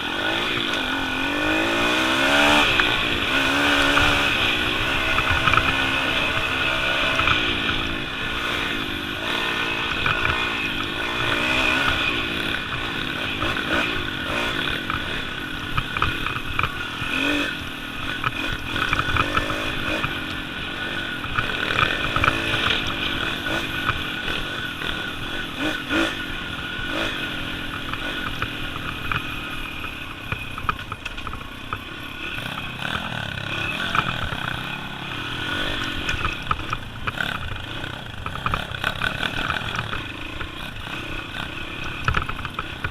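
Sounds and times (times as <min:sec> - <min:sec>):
pit bike engine revving: 0:00.0 - 0:42.9.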